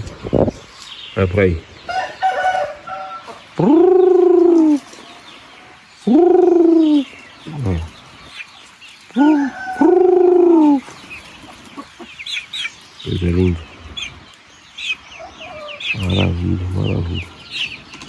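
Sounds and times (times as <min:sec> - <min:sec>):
chicks chirping: 0:00.0 - 0:18.0
chicken clucks: 0:01.8 - 0:18.0
rooster crowing: 0:01.9 - 0:03.4, 0:09.2 - 0:10.8.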